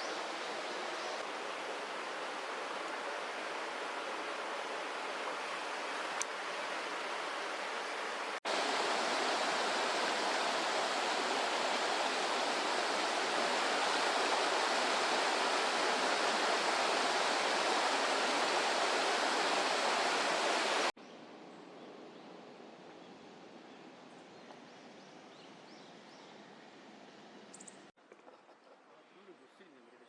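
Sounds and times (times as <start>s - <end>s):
flowing water rushing: 0.0s - 21.0s.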